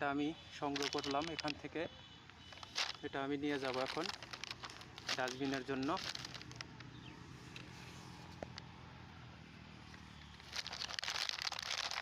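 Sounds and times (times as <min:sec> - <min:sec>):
dense crackling rustle: 0:00.6 - 0:01.7, 0:02.3 - 0:07.0, 0:09.9 - 0:12.0.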